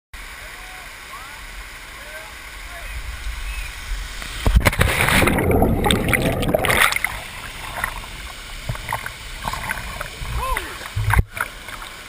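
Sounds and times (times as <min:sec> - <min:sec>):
waterfall rushing: 0:00.2 - 0:12.0
water splashing and churning: 0:04.0 - 0:12.0.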